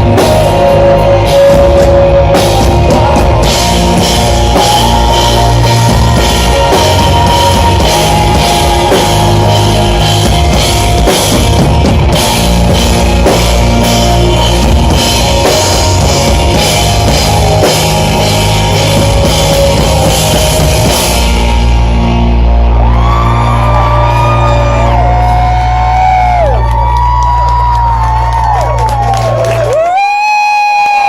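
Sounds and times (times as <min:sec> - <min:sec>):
drum kit and cymbals: 0:00.0 - 0:22.5
live rock band playing: 0:00.0 - 0:31.0.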